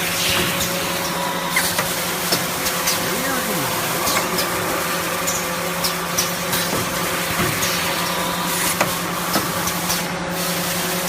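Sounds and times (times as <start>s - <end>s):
machine motor hum: 1.8s - 9.0s.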